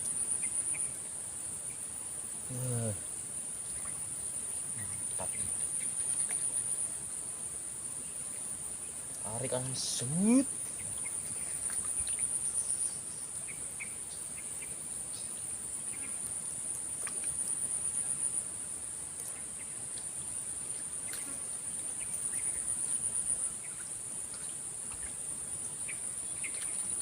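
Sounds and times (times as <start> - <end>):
insects calling: 0.0 - 27.0.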